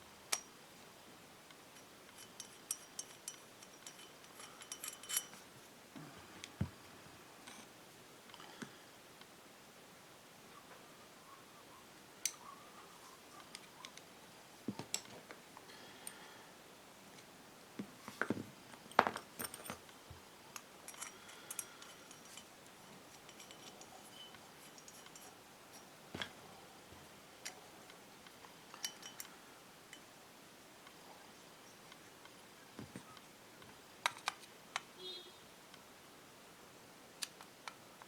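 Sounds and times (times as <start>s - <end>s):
metal parts clinking: 1.8s - 5.5s, 18.8s - 19.9s, 20.6s - 26.3s.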